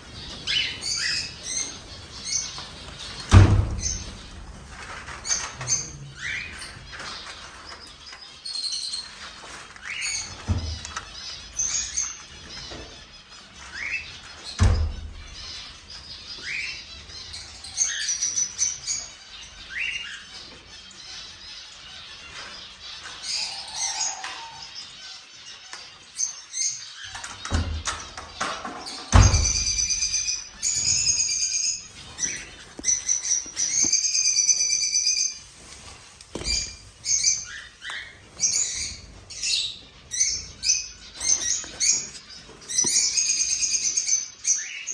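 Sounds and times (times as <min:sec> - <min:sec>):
higher bird calls: 0:00.0 - 0:07.0, 0:23.3 - 0:24.8
cockatiels chirping: 0:00.0 - 0:27.6, 0:29.1 - 0:44.9.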